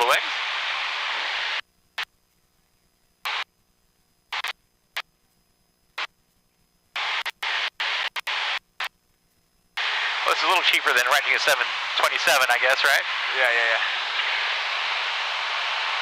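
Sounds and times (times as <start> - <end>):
intercom squelch hiss: 0.0 - 1.6, 9.8 - 16.0.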